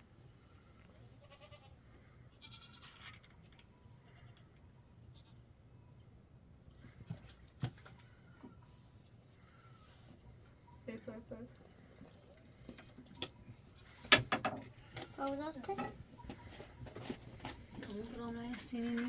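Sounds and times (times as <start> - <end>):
distant goats bleating: 1.1 - 3.1.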